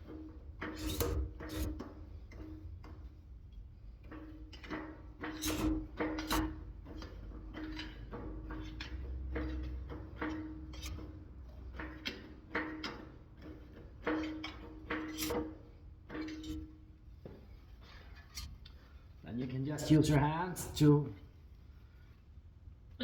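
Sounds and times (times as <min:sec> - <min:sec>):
sheet metal clanks and knocks: 0:04.0 - 0:16.8.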